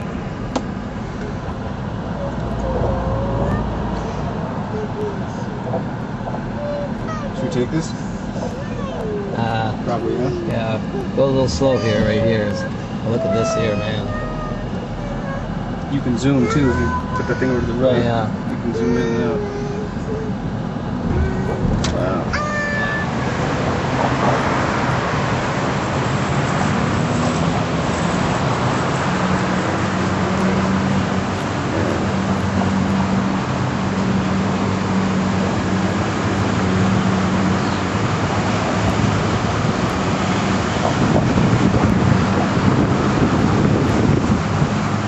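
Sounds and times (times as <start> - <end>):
car engine running: 0.0 - 26.9
road and wind noise: 0.0 - 45.0.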